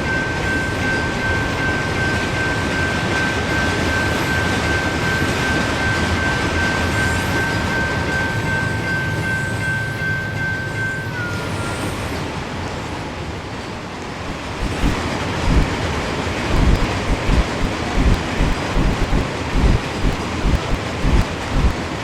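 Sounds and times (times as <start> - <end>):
steady high-pitched whine: 14.3 - 15.8, 16.5 - 22.0.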